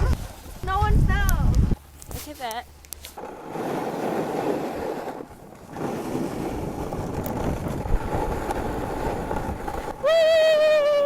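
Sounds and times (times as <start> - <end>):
wind rushing over microphone: 0.0 - 1.8, 5.7 - 11.0.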